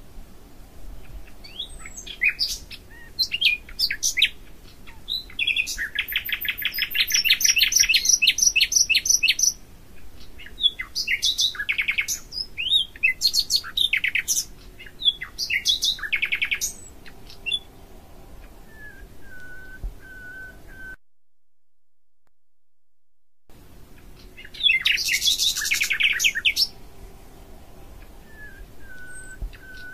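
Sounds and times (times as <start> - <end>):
songbird trilling and whistling: 1.4 - 9.6, 10.2 - 17.7, 18.7 - 21.0, 24.2 - 26.8, 28.2 - 29.9.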